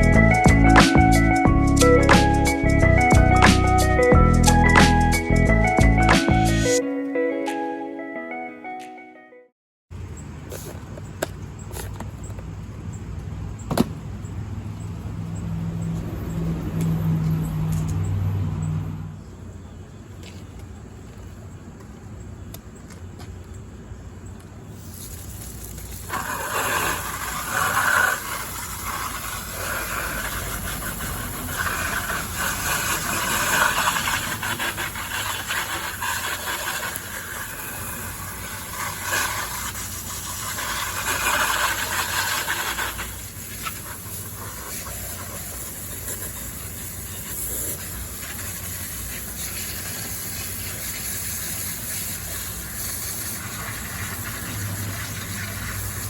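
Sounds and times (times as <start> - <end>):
hose spraying water on plastic: 24.8 - 56.0.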